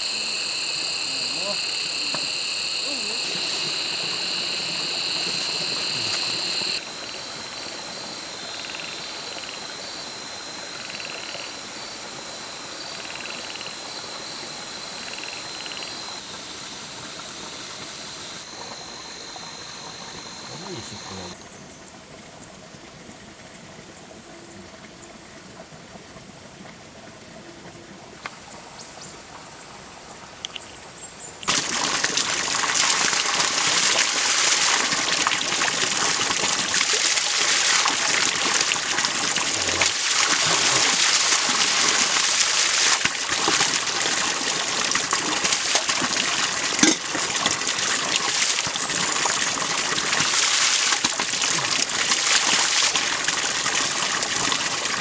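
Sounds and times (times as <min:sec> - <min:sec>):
water splashing and trickling: 0:31.5 - 0:55.0.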